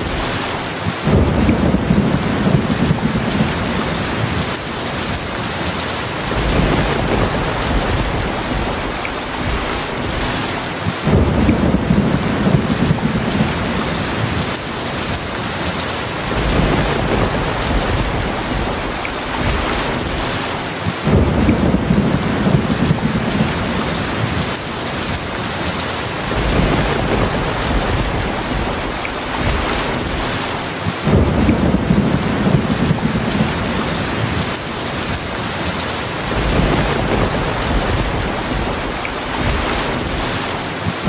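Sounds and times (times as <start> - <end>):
heavy rain: 0.0 - 41.0
low rolling thunder: 1.0 - 15.4, 16.0 - 25.2, 26.1 - 41.0.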